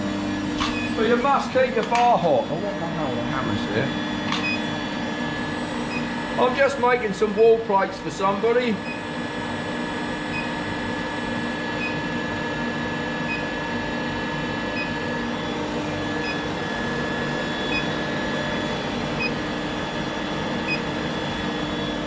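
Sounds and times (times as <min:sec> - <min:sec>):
induction heater humming: 0:00.0 - 0:22.0.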